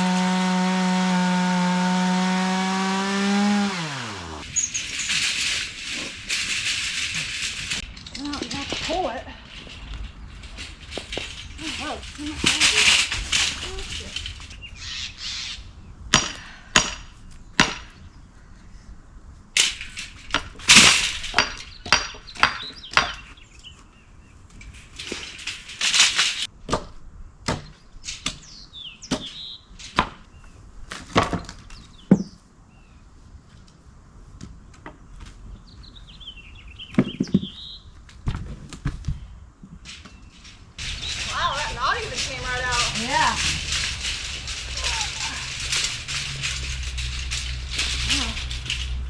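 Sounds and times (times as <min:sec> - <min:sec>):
wood cracking: 0:00.0 - 0:14.6, 0:24.8 - 0:26.5, 0:39.8 - 0:49.0.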